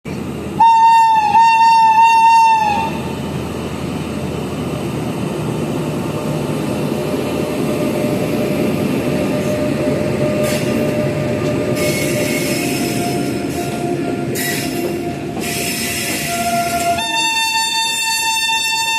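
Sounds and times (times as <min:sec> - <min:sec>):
train wheels rumbling: 0:00.1 - 0:18.9
locomotive horn pulses: 0:00.6 - 0:03.1, 0:09.3 - 0:18.9
wheel squeal hissing: 0:11.7 - 0:17.7.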